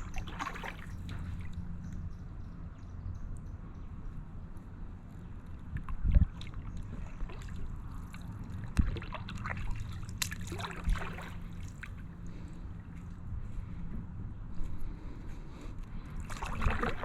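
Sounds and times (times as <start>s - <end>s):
paddle splashing in water: 0.0s - 1.5s, 6.3s - 12.0s, 16.2s - 17.0s
steady low rumble: 0.0s - 17.0s.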